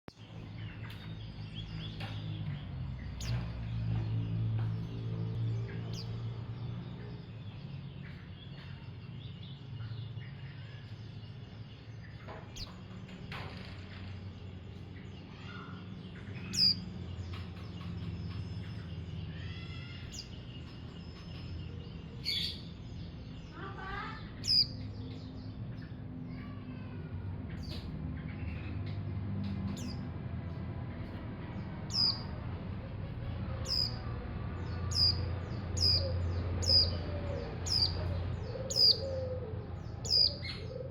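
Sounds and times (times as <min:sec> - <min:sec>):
bird high chirps: 0:09.8 - 0:27.0, 0:27.6 - 0:30.1, 0:31.0 - 0:40.9
bird warbled phrases: 0:23.5 - 0:24.9, 0:31.9 - 0:40.9.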